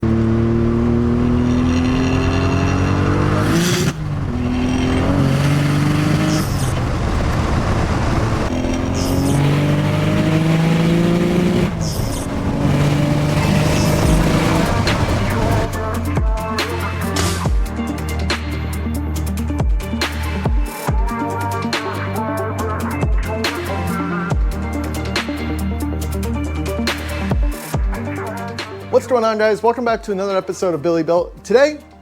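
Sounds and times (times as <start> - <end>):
car engine accelerating hard: 0.0 - 15.8.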